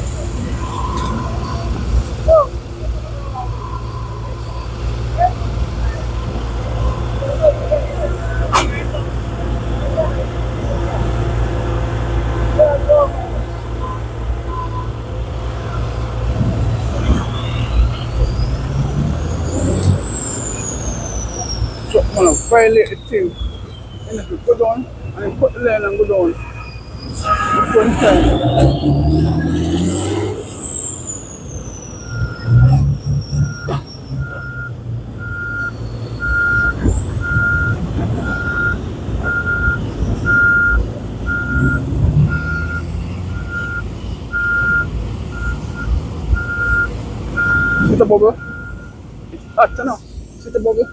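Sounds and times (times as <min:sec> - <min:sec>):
traffic engines rumbling: 0:00.0 - 0:50.9
reversing alarm beeping: 0:19.3 - 0:50.9.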